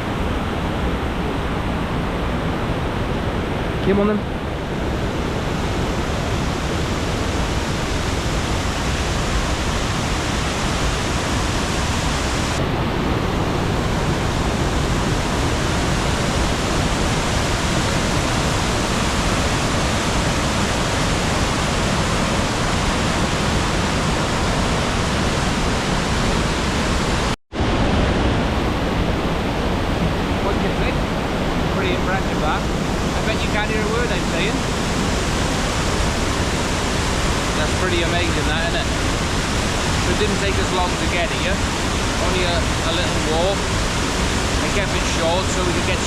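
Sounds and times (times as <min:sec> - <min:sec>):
waterfall rushing: 0:04.4 - 0:46.0.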